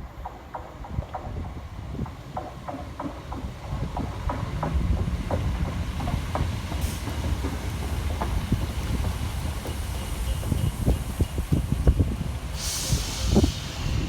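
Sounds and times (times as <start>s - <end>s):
train rumbling on track: 0.0s - 14.0s
wheels clicking over rail joints: 0.1s - 13.6s
brief hiss: 12.5s - 14.0s.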